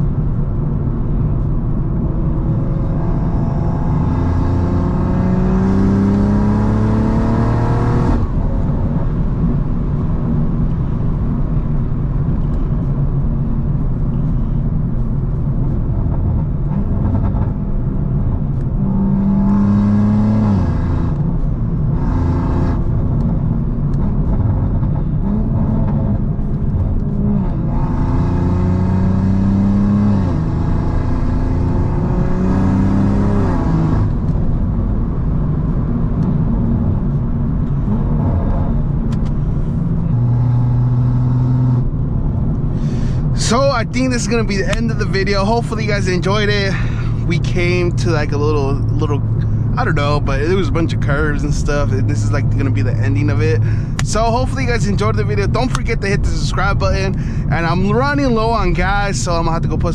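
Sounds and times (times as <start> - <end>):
car engine revving hard: 2.1 - 8.4, 18.5 - 23.0, 25.0 - 34.3, 37.6 - 41.9, 42.7 - 59.5.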